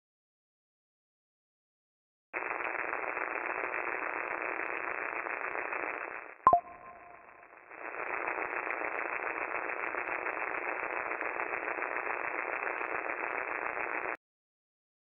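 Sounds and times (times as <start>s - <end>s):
faint crackles: 2.4s - 14.2s.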